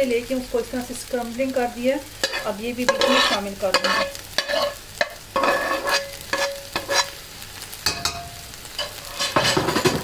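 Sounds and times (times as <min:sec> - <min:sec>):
food sizzling: 0:00.0 - 0:10.0
metal spatula scraping pan: 0:02.2 - 0:07.2, 0:07.8 - 0:10.0.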